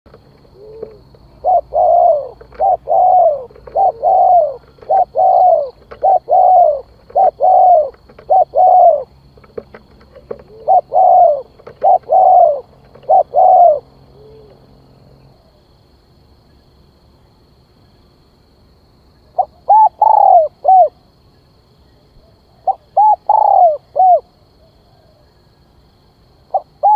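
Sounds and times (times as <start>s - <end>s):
dove cooing: 0.4s - 14.7s, 19.4s - 21.0s, 22.3s - 25.4s, 26.5s - 26.9s.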